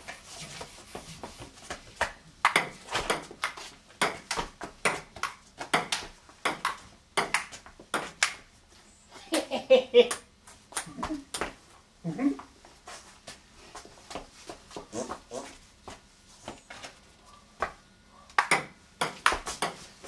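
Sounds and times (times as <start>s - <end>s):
ping pong ball clicking: 18.4s - 19.8s.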